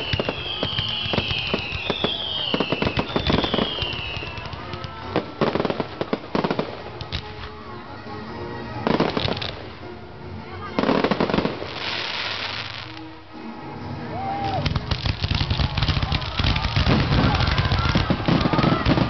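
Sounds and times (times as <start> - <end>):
firework whistles falling in pitch: 0.0 - 4.4
heavy firework bursts: 0.0 - 7.0, 14.4 - 19.0
fireworks bangs and crackling: 0.0 - 7.7, 8.8 - 9.9, 10.7 - 13.1, 14.3 - 19.0.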